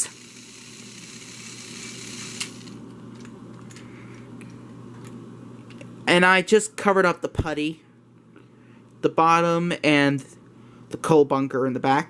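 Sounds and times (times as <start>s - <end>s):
toy motor and gears whirring: 0.0s - 2.8s.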